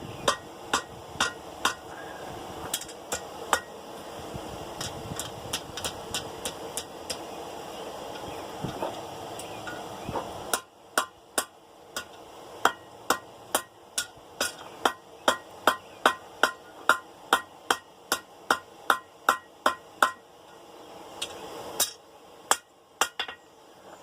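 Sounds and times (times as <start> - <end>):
hammer striking steel on anvil: 0.2 - 1.9, 2.7 - 3.8, 4.8 - 7.2, 10.5 - 20.2, 21.2 - 23.4.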